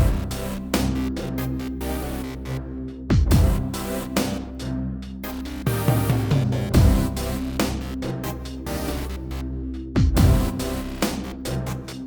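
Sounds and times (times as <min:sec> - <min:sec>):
electronic dance music: 0:00.0 - 0:02.5, 0:05.4 - 0:09.4, 0:10.0 - 0:12.0.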